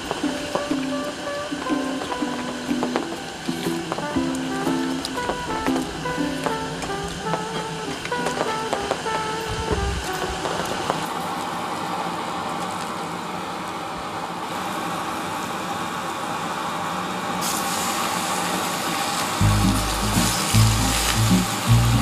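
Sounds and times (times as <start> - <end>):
garlic sizzling in oil: 0.0 - 9.3, 17.4 - 22.0
meat sizzling on griddle: 17.4 - 22.0.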